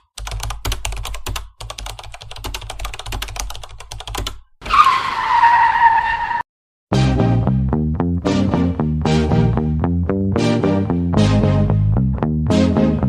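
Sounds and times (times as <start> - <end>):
fast keyboard typing: 0.0 - 4.4
car tyre screeching: 4.6 - 6.4.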